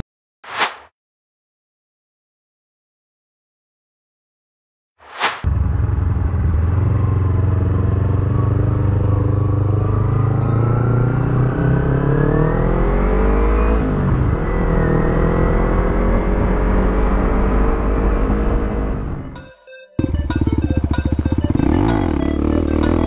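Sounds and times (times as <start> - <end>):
motorcycle engine accelerating: 5.4 - 19.3, 20.0 - 23.0.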